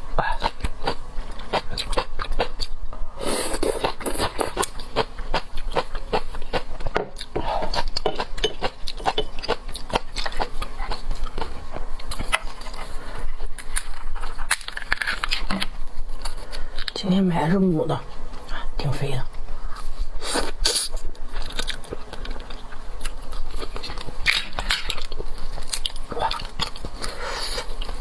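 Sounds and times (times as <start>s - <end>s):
chewing seafood with crackling clicks: 0.3s - 3.0s, 3.6s - 17.0s, 20.9s - 28.0s.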